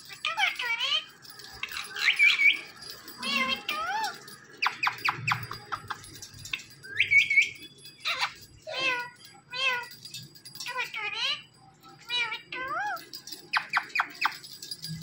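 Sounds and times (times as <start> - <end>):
parrot squawking and whistling: 0.1 - 6.0, 6.8 - 9.9, 12.0 - 14.4.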